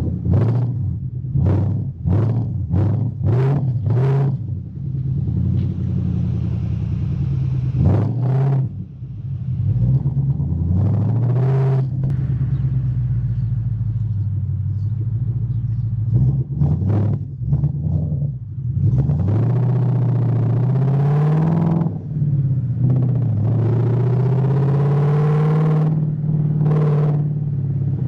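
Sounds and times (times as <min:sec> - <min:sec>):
car engine revving: 0:00.0 - 0:28.0
engine idle rumble: 0:04.4 - 0:07.9, 0:11.9 - 0:16.6.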